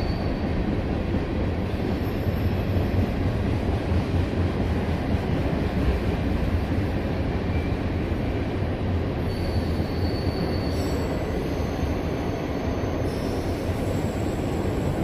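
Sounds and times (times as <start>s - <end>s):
high-pitched wheel squeals: 0.0s - 0.5s, 9.3s - 14.4s
train wheels rumbling on rails: 0.0s - 15.0s.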